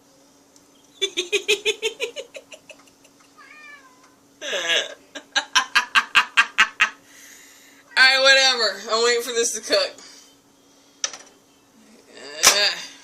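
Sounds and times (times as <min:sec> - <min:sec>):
cat meowing: 0:03.4 - 0:04.2.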